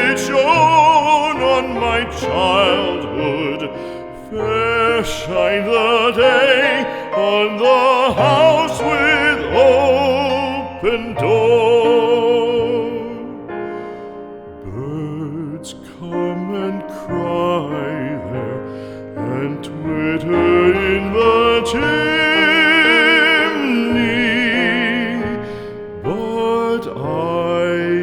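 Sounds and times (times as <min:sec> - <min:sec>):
slow tender instrumental music: 0:00.0 - 0:28.0.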